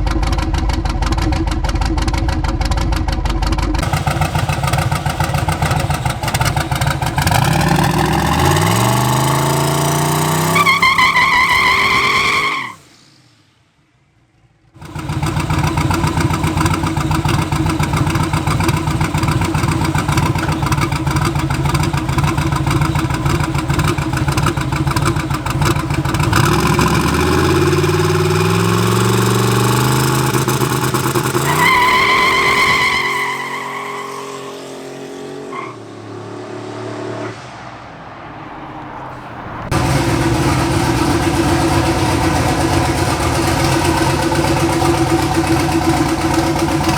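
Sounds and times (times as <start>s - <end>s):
truck engine revving: 0.0s - 12.9s, 14.8s - 37.2s, 38.7s - 46.9s.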